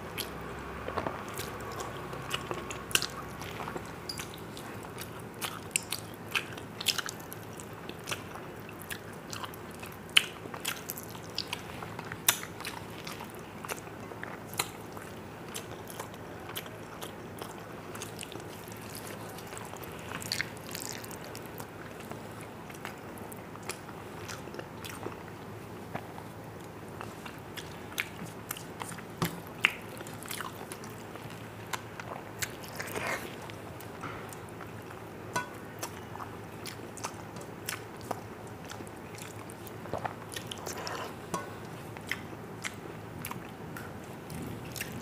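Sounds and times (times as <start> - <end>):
chewing and lip smacking: 1.0 - 23.0, 27.0 - 45.0.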